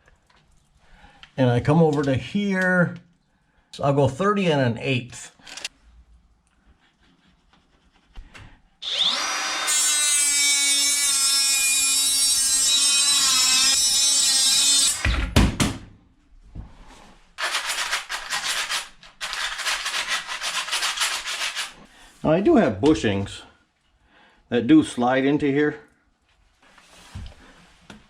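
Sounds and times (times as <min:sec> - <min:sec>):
power saw whining: 0:08.8 - 0:15.3
rhythmic rubbing strokes: 0:17.4 - 0:21.8.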